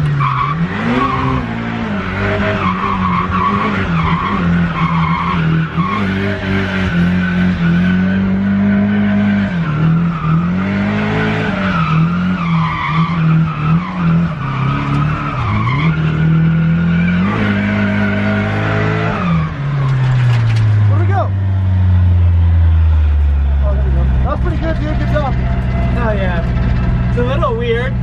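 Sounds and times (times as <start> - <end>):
car engine revving: 0.0 - 28.0
tyres squealing: 23.6 - 28.0.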